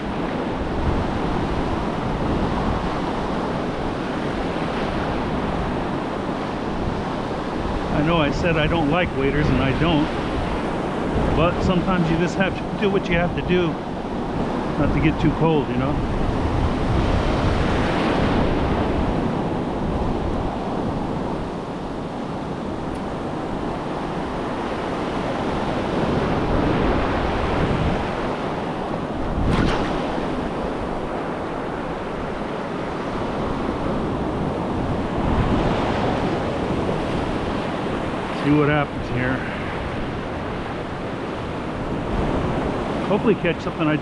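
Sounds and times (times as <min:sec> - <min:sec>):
surf breaking on beach: 0:00.0 - 0:44.0
wind buffeting microphone: 0:00.0 - 0:44.0
wave crash: 0:24.6 - 0:33.8.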